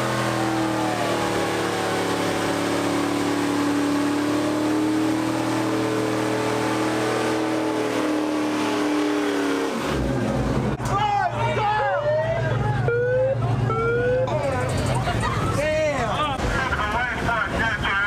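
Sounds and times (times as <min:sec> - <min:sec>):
car engine revving high: 0:00.0 - 0:10.8.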